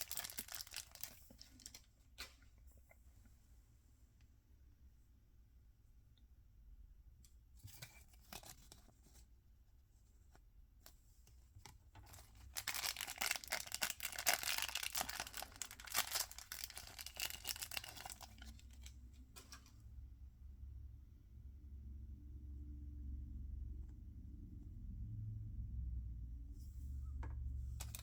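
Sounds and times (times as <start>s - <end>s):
packaging tearing and crinkling: 0.0s - 1.8s, 12.4s - 18.9s
packaging clicks: 12.6s - 18.9s.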